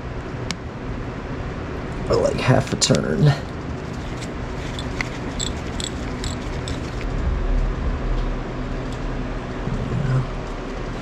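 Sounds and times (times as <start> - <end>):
low rumble: 6.2 - 11.0.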